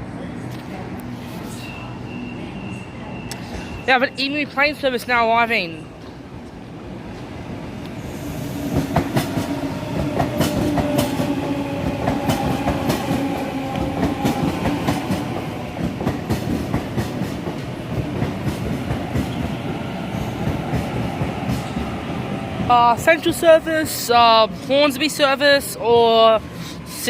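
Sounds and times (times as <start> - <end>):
train motor hum: 7.2 - 23.1.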